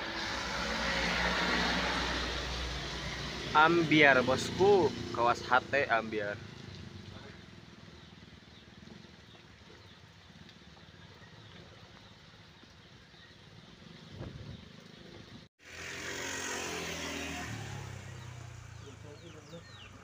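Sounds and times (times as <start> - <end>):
vehicle engine passing close: 0.0 - 8.6, 15.6 - 20.0.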